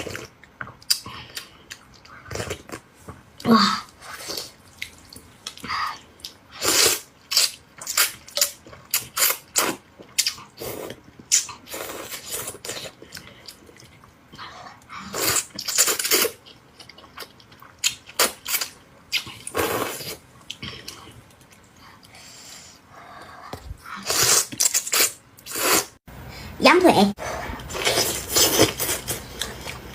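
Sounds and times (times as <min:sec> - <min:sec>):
slurping: 0:23.9 - 0:26.0, 0:27.2 - 0:29.9.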